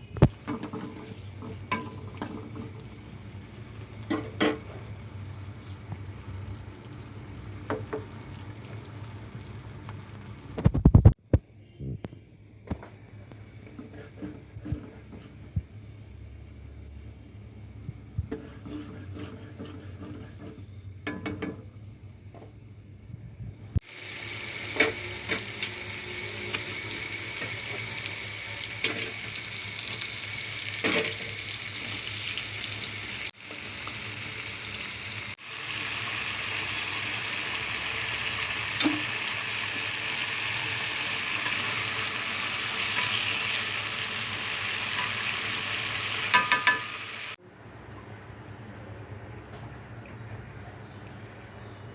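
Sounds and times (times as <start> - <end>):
food sizzling in a pan: 0.2 - 11.1, 23.8 - 47.4.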